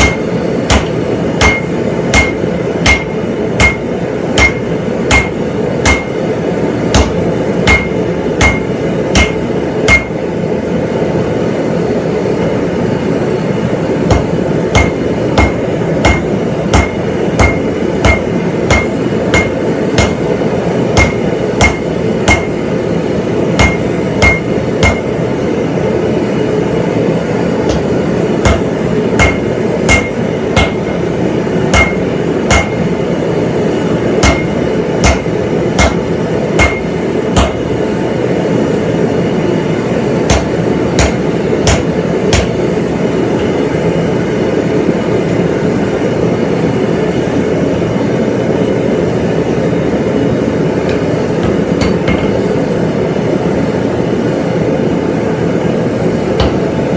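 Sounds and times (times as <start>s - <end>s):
hammer striking steel on anvil: 0.0s - 6.3s, 6.9s - 10.3s, 14.0s - 22.7s, 23.6s - 25.3s, 27.7s - 31.1s, 31.7s - 33.0s, 34.2s - 37.8s, 40.3s - 42.7s, 43.4s - 43.6s, 50.8s - 52.5s, 56.4s - 56.7s.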